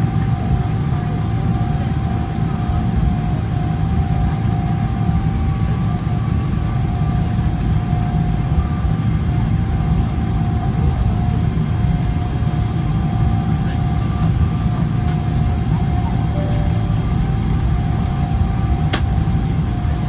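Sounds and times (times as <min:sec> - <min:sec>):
jet engine rumble with whine: 0:00.0 - 0:20.0
faint high engine tone: 0:15.2 - 0:19.9.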